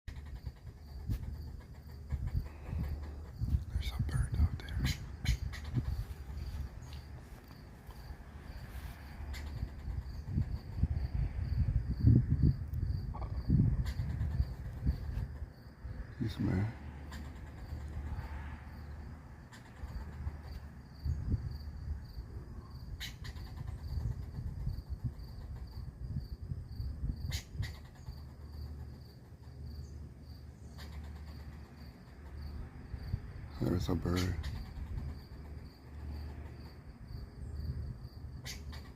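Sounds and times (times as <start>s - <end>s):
low rumble on microphone: 0.1s - 23.0s
cricket chirping: 0.1s - 38.9s.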